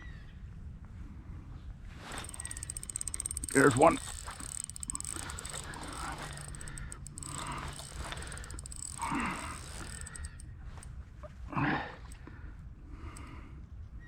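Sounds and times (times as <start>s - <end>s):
fishing reel ticking: 2.0s - 10.9s.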